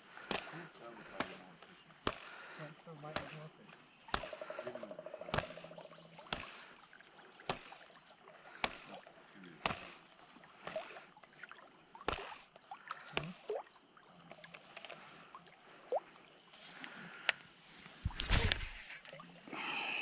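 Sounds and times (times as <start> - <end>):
canoe paddle strokes knocking: 0.0 - 10.9, 18.0 - 19.0
water gurgling and dripping: 4.2 - 17.2.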